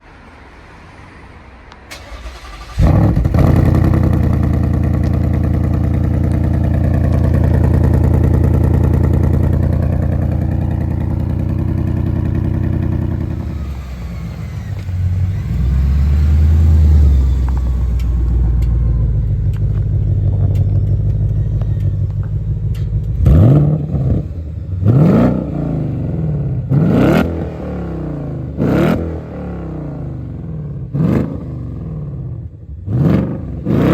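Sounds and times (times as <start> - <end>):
engine cranking and starting: 1.9 - 24.8
engine idling: 1.9 - 25.1
engine revving: 1.9 - 33.9.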